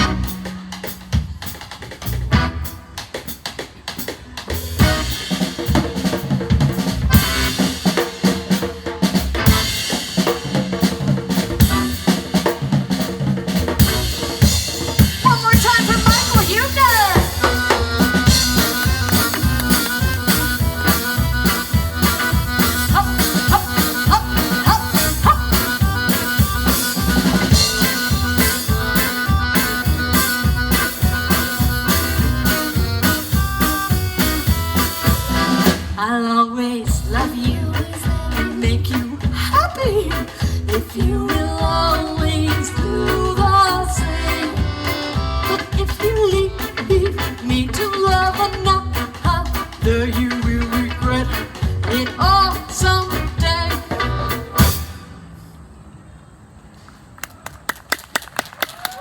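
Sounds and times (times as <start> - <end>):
drum kit beat: 0.0 - 36.0, 36.9 - 55.0.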